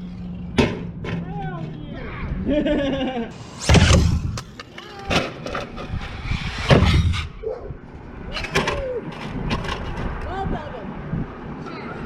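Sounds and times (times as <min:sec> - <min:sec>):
short gliding whine: 0:03.4 - 0:04.8, 0:05.4 - 0:07.9
knocks and thuds: 0:03.6 - 0:04.5.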